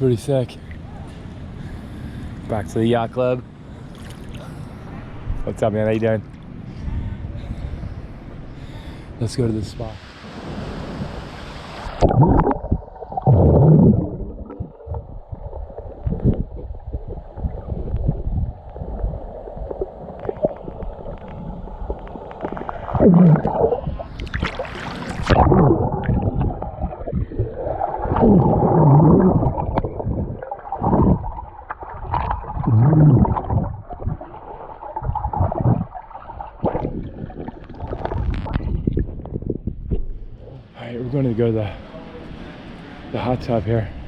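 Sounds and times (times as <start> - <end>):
muffled underwater gurgling: 12.0 - 40.0.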